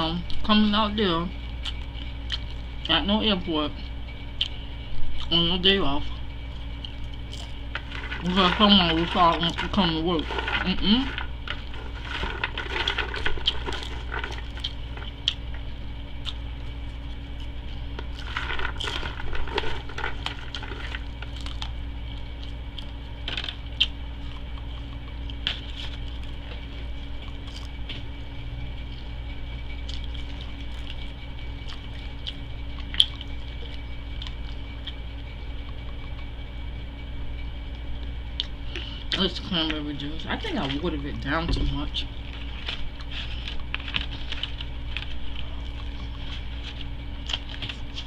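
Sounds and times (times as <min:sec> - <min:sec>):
low hum: 0:00.0 - 0:48.0
wet chewing: 0:01.5 - 0:02.9, 0:06.1 - 0:28.2, 0:28.8 - 0:36.4, 0:42.1 - 0:48.0.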